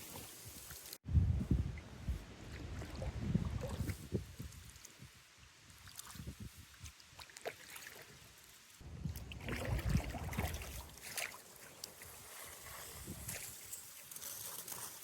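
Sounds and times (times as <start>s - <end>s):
paddle splashing water: 5.7s - 13.6s.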